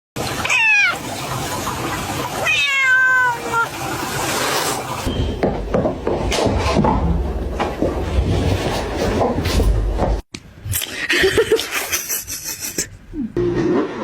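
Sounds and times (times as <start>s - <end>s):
cat meowing: 0.4s - 1.1s, 2.4s - 3.9s
low rumbling with knocks: 5.1s - 10.3s.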